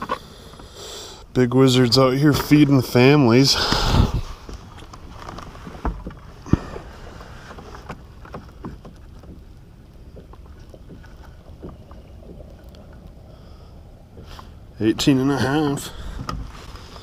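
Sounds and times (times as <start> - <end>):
wind rumble on microphone: 3.6 - 17.0.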